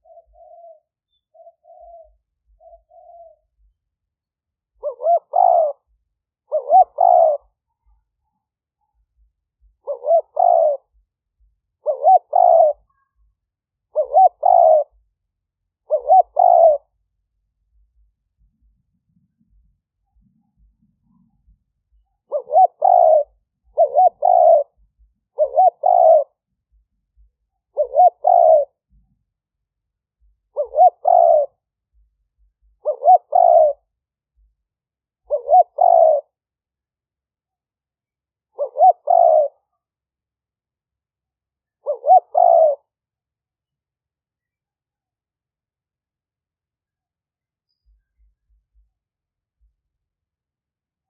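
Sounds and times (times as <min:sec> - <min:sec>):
dove cooing: 0:00.0 - 0:03.7, 0:04.7 - 0:08.0, 0:09.2 - 0:11.0, 0:11.8 - 0:13.3, 0:13.9 - 0:15.0, 0:15.8 - 0:17.0, 0:19.2 - 0:26.5, 0:27.2 - 0:29.2, 0:30.2 - 0:31.7, 0:32.6 - 0:33.9, 0:35.2 - 0:36.4, 0:38.5 - 0:39.7, 0:41.7 - 0:43.0.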